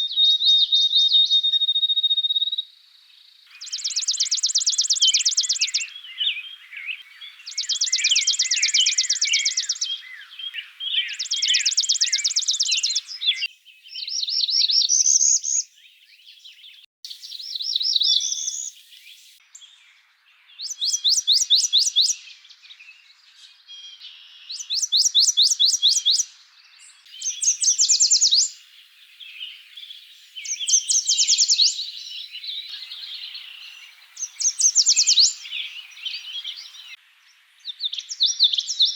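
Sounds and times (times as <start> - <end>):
birds chirping: 3.5 - 38.9
birds singing short rising phrases: 3.5 - 38.9
bird trilling: 32.7 - 37.0.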